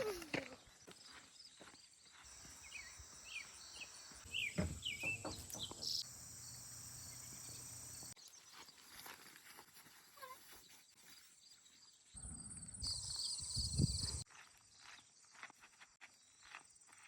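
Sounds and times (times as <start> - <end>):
bird chirps: 1.0 - 8.5, 12.2 - 14.2
insects droning: 2.2 - 8.2.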